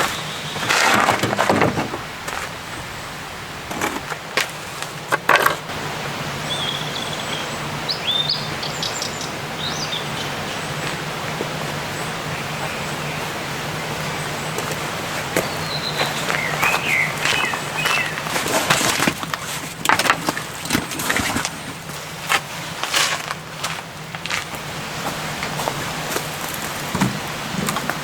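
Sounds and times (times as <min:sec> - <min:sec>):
small birds chirping: 0:00.0 - 0:00.7, 0:06.4 - 0:18.4
sharp wooden knocks: 0:00.6 - 0:02.4.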